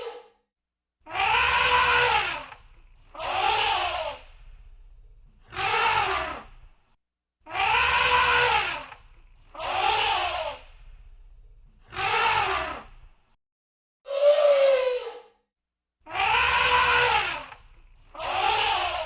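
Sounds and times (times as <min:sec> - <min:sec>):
elephant trumpeting: 0:01.1 - 0:04.2, 0:07.5 - 0:09.0, 0:16.1 - 0:17.6.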